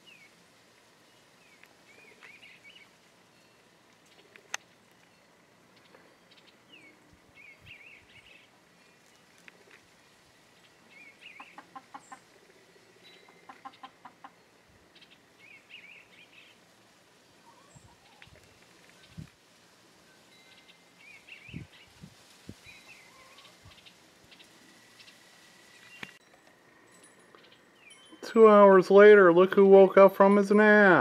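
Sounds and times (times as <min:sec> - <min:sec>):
small songbirds chirping: 0:00.0 - 0:31.0
chickens clucking: 0:11.2 - 0:14.4, 0:17.4 - 0:18.5, 0:23.0 - 0:25.1.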